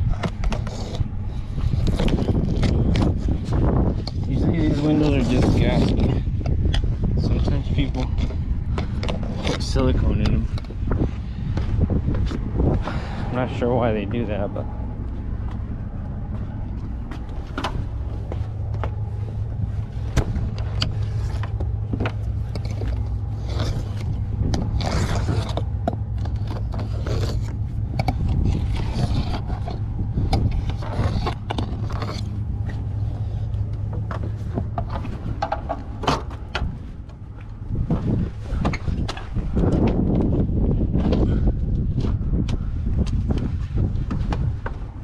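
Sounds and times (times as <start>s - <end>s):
hand tool scraping: 0.0s - 6.3s, 7.4s - 10.7s, 17.4s - 36.8s
steady low hum: 0.0s - 45.0s.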